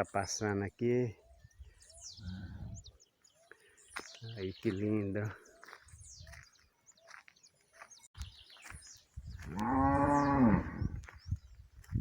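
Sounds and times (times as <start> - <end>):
faint bird chirps: 1.2 - 11.7
cow mooing: 9.5 - 10.9.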